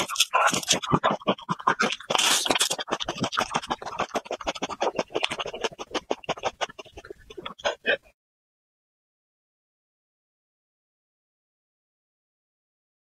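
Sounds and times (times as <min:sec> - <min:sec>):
chewing raw garlic crunches: 0:00.0 - 0:07.9
wet mouth clicks: 0:00.0 - 0:08.1.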